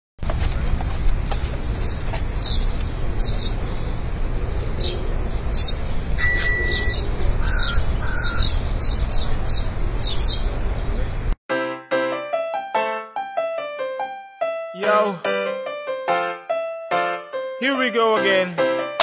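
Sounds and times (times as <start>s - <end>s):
street traffic rumble: 0.2s - 11.4s
small birds chirping: 1.2s - 4.0s, 4.6s - 11.1s
bell ring: 6.2s - 7.2s.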